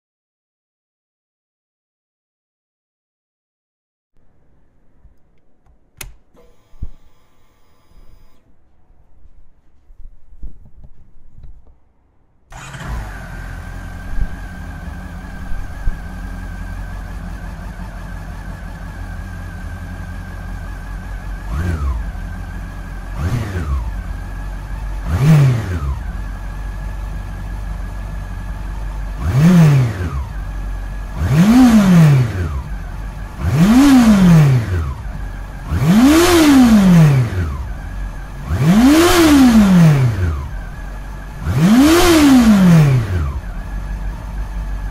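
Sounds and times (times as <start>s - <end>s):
motorcycle engine idling: 12.5s - 44.9s
motorcycle engine revving: 12.5s - 44.9s.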